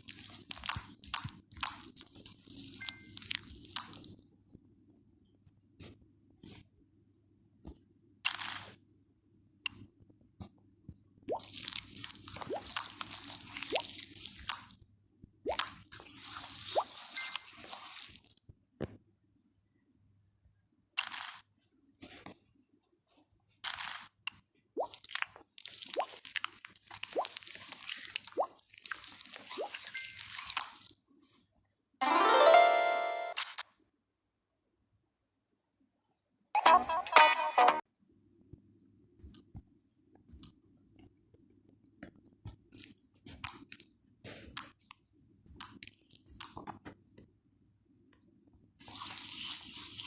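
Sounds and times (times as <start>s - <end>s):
slime squelching: 24.8s - 29.9s.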